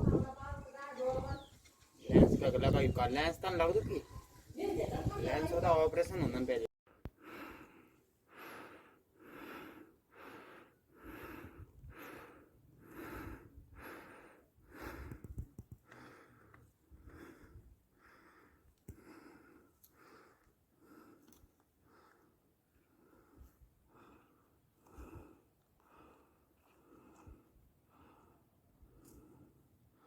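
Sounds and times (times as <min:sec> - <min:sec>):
faint rapid breathing: 0:07.0 - 0:30.0.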